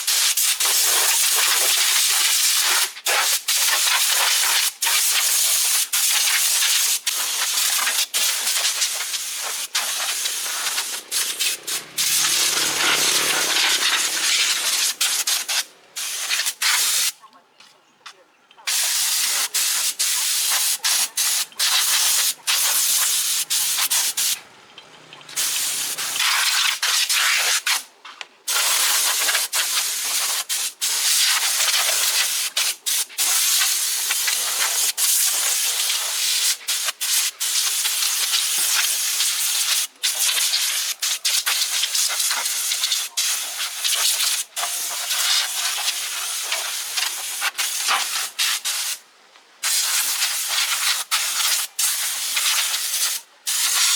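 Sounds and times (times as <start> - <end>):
spray gun hissing: 7.2 - 17.1.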